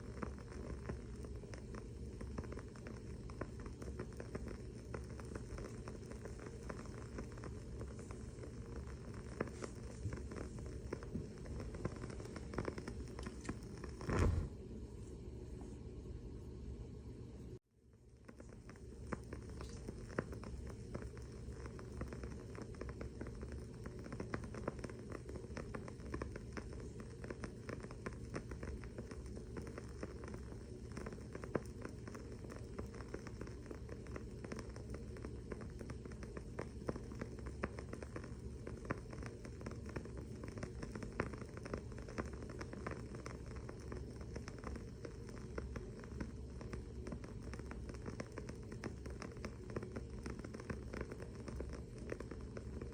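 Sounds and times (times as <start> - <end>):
candle wick crackling: 0.0 - 16.1, 17.9 - 52.9.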